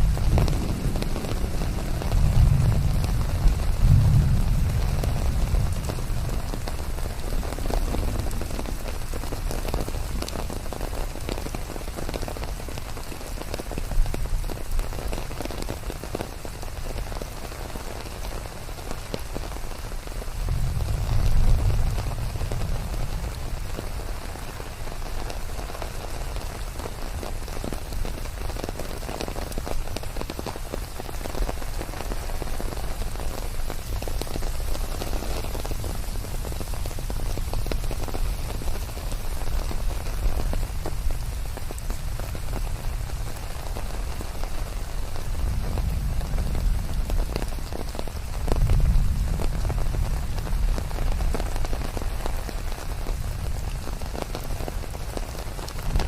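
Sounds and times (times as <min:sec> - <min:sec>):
rain drops hitting surface: 0:00.0 - 0:56.0
low rumble: 0:20.5 - 0:23.6.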